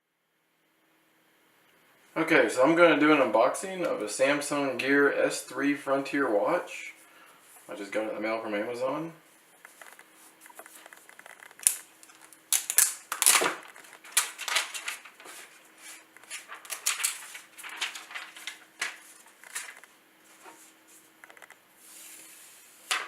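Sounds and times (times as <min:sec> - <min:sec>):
sharp crackles: 0:09.6 - 0:15.3
plastic wrap crinkling: 0:09.6 - 0:21.6.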